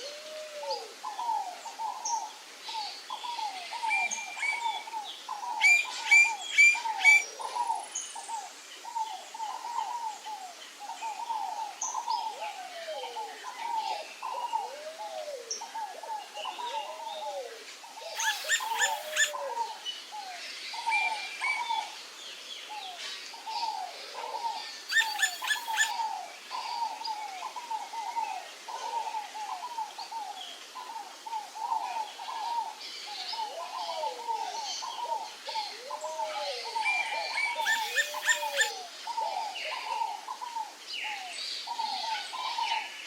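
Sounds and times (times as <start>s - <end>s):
wild birds calling: 0.0s - 22.0s, 22.7s - 43.0s
rapid high bird notes: 18.2s - 19.4s, 24.9s - 25.9s, 37.6s - 38.7s.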